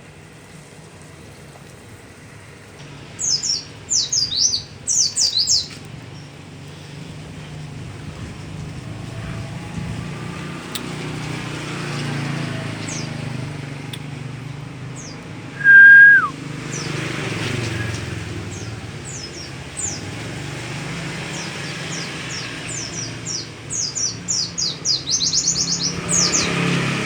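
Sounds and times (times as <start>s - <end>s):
high downward-sweeping bird chirps: 3.2s - 5.8s, 15.0s - 20.1s, 21.4s - 26.6s
loud whistled bird note: 15.6s - 16.3s.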